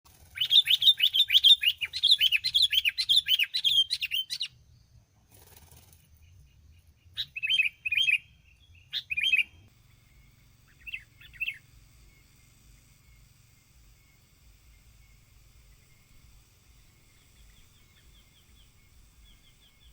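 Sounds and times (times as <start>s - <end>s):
bulbul chattering calls: 0.3s - 4.5s, 6.2s - 13.4s, 17.0s - 19.9s.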